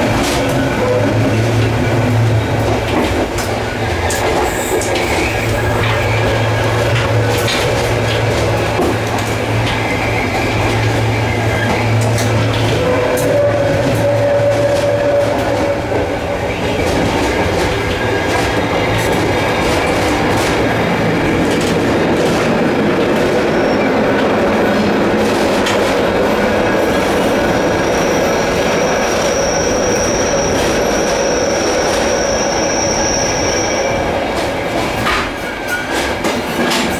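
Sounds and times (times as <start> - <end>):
train wheels clickety-clack: 0.0 - 36.9
high wheel squeal: 27.6 - 34.2.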